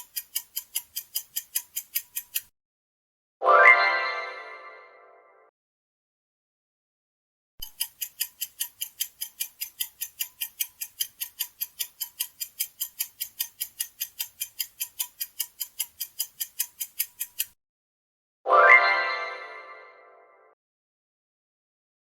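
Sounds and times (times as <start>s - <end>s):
clock ticking: 0.0s - 2.5s, 7.6s - 17.6s.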